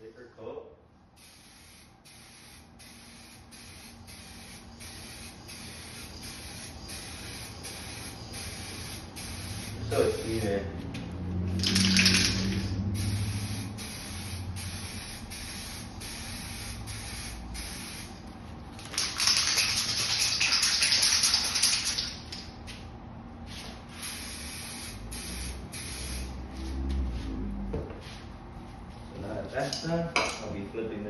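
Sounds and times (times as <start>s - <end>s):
aerosol can spraying hiss: 1.2s - 10.4s, 11.6s - 18.2s, 23.9s - 26.4s.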